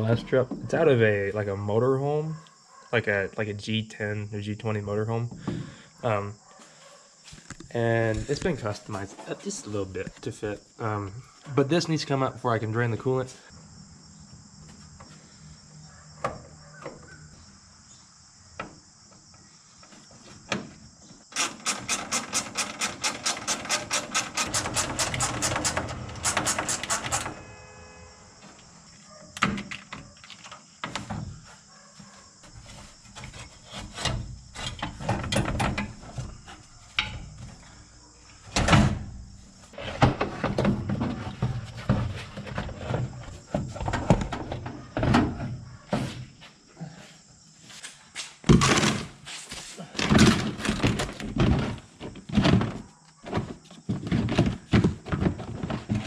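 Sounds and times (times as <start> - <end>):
crickets chirring: 0.0 - 56.0
fast even tool clicks: 21.4 - 27.2
metal clanks and knocks: 21.4 - 27.6, 32.5 - 37.6.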